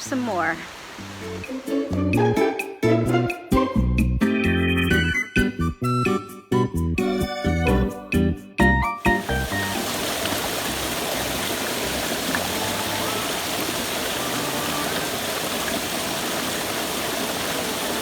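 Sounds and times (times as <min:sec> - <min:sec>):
creek water rushing: 0:00.0 - 0:03.1, 0:09.2 - 0:18.0.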